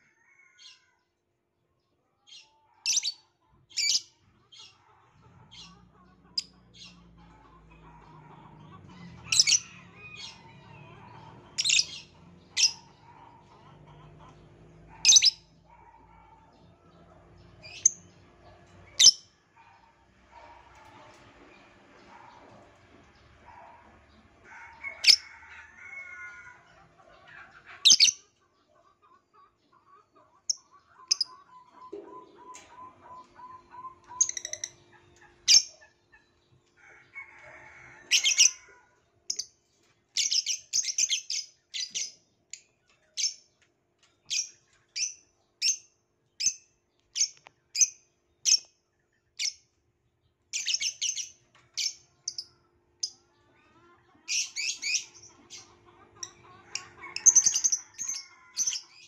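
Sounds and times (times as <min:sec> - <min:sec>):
lovebird chirping: 0:11.6 - 0:12.0.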